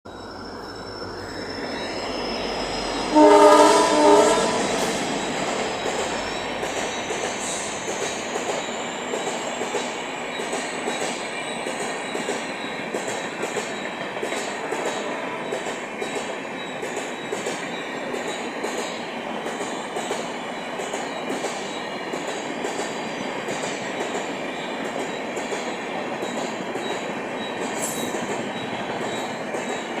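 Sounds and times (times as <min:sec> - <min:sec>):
train rumbling past: 0:00.1 - 0:30.0
locomotive horn blast: 0:03.1 - 0:04.9.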